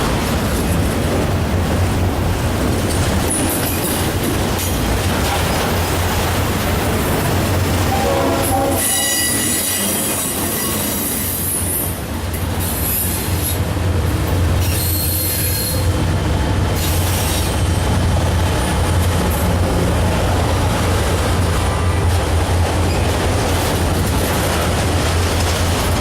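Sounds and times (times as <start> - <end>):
freight train rumble: 0.0 - 26.0
train wheels squealing: 8.8 - 12.0, 12.6 - 13.6, 14.6 - 16.0.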